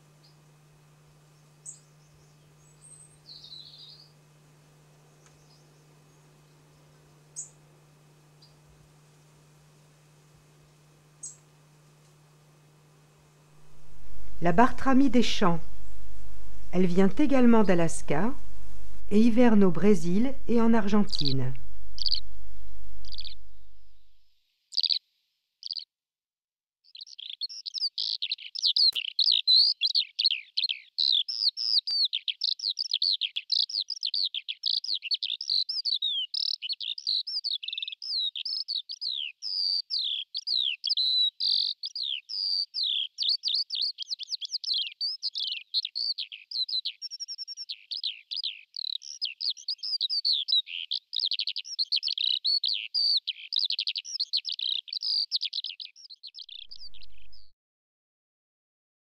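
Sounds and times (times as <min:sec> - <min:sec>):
songbird singing trills: 0:01.3 - 0:04.2, 0:05.2 - 0:07.6, 0:19.7 - 0:22.4, 0:23.0 - 0:23.6, 0:26.9 - 0:57.5.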